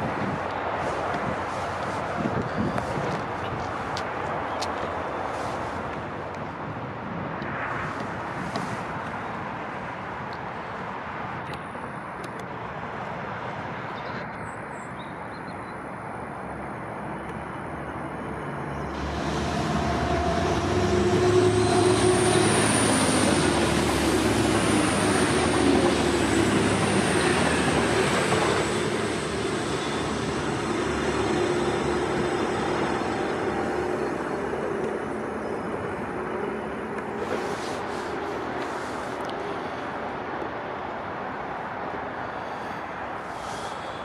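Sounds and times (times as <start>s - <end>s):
diesel train passing: 0.0s - 13.9s, 15.8s - 44.0s.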